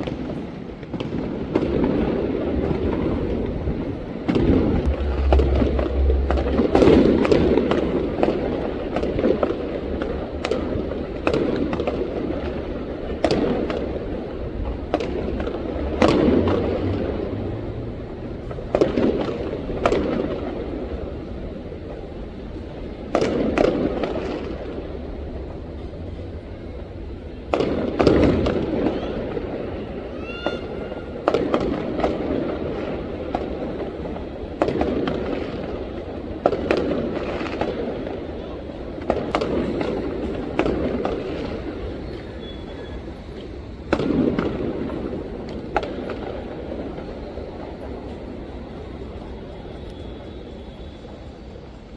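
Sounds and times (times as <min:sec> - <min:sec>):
fireworks exploding: 0:00.0 - 0:51.9
steady background din: 0:02.6 - 0:11.0.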